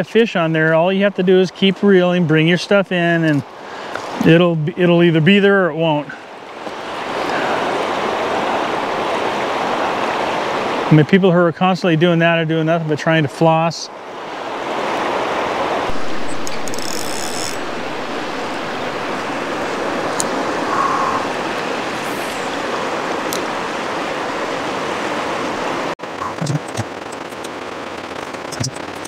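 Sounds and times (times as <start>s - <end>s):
river water rushing: 6.0s - 11.0s, 13.9s - 29.0s.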